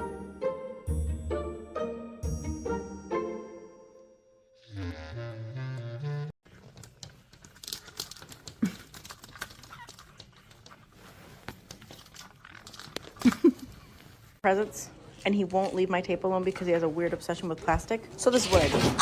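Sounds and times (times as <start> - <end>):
crinkling and rustling: 6.4 - 14.4.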